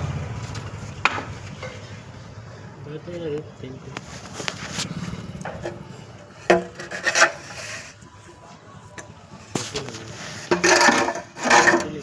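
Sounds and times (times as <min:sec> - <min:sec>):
trowel scraping a wall: 0:06.6 - 0:08.0, 0:10.1 - 0:12.0.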